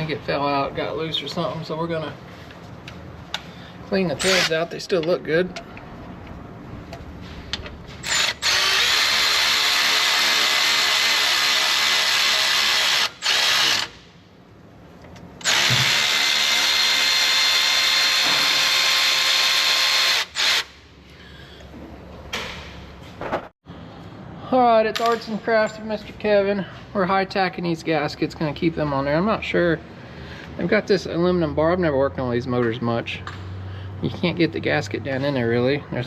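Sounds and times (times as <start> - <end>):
power tool whirring: 4.2 - 4.6, 8.0 - 14.0, 15.4 - 20.8.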